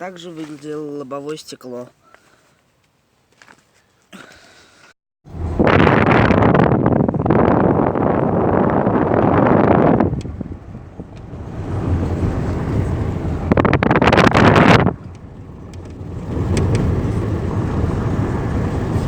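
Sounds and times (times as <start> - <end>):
car road and wind rush: 5.3 - 19.0.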